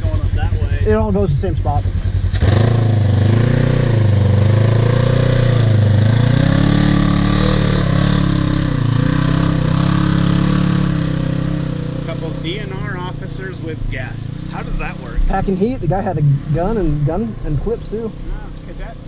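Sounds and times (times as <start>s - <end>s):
off-road vehicle engine revving: 0.0s - 19.0s.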